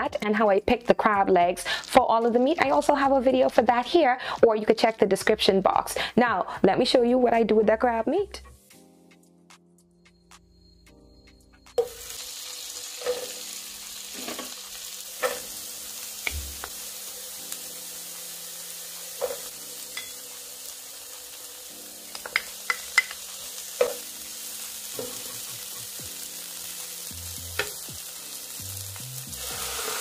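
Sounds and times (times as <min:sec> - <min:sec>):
vegetables sizzling in a frying pan: 0:11.8 - 0:30.0.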